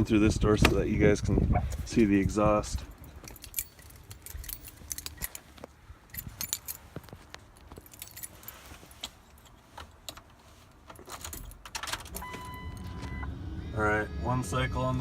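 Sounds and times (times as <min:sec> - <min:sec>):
keys jangling: 0:02.8 - 0:12.9.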